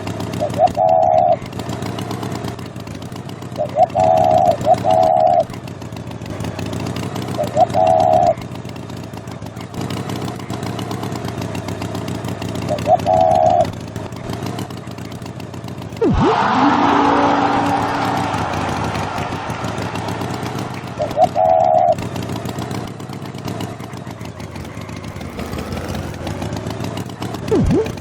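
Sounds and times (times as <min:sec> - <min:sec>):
engine running: 0:00.0 - 0:28.0
short pitched call: 0:16.0 - 0:22.0
swooping sound effect: 0:16.0 - 0:22.0, 0:27.5 - 0:28.0
rising run of tones: 0:16.0 - 0:22.4, 0:27.5 - 0:28.0.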